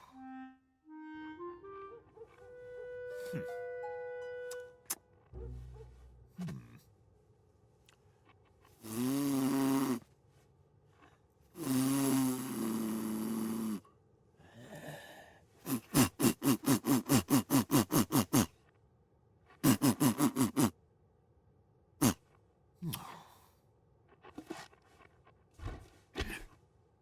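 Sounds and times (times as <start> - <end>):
cartoon snoring: 8.8 - 10.1, 11.6 - 13.9, 15.6 - 18.6, 19.6 - 20.8.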